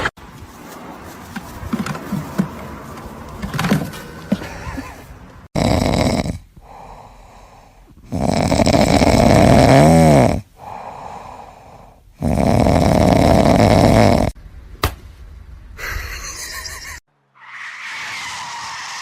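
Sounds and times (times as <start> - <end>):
loud snoring: 5.5 - 6.9, 8.0 - 10.5, 12.2 - 14.4
quiet breaths: 6.4 - 8.1, 10.4 - 12.2.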